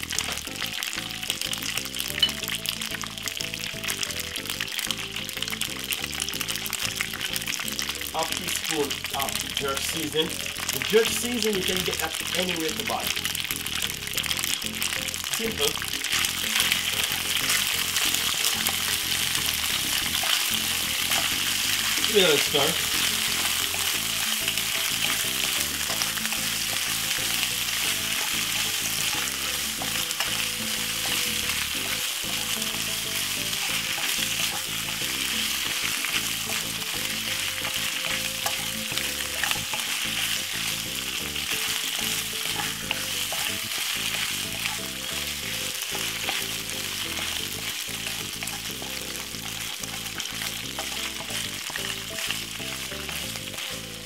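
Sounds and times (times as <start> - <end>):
pasta sizzling in a pan: 0.0 - 54.0
wooden spoon scraping a pan: 15.3 - 53.6.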